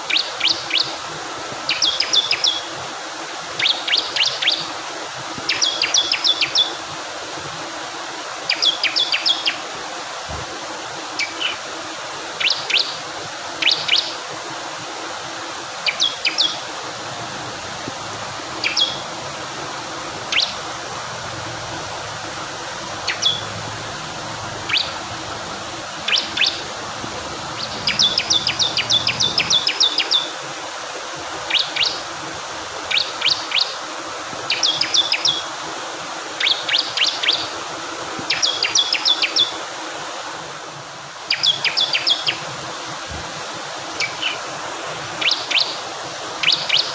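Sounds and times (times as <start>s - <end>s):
fast-flowing water rushing: 0.0s - 46.9s
bird chipping and trilling: 18.6s - 19.2s, 20.2s - 20.8s, 23.0s - 25.2s, 26.0s - 30.3s.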